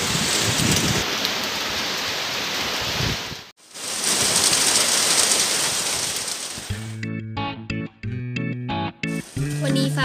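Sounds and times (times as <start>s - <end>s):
rain on roofs and foliage: 0.0s - 7.0s, 9.2s - 10.0s.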